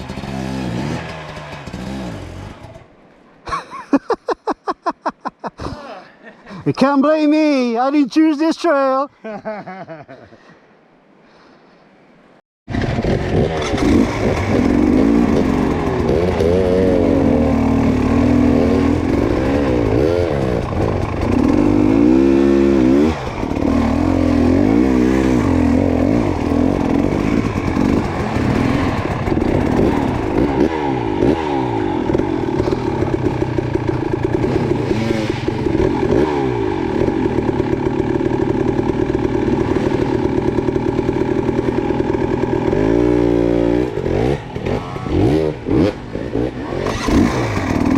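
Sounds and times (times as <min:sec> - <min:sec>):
dirt bike engine revving: 0:00.0 - 0:02.8, 0:12.7 - 0:47.9.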